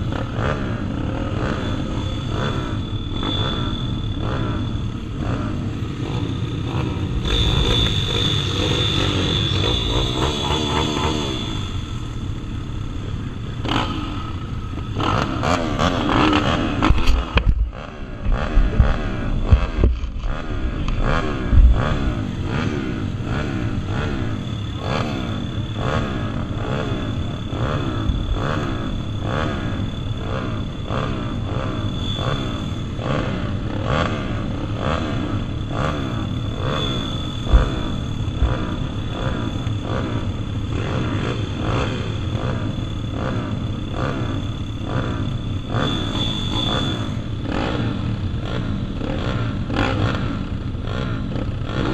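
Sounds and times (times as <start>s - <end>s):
pit bike engines revving: 0.0s - 51.9s
steady high whine: 0.0s - 51.9s
low thumps: 37.5s - 39.0s.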